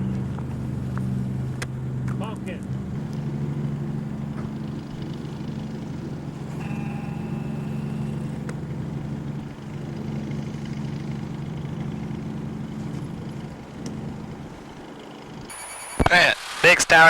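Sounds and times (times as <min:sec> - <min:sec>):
aircraft piston engine idling: 0:00.0 - 0:16.1
brief steady tone: 0:06.5 - 0:08.5, 0:15.5 - 0:16.4.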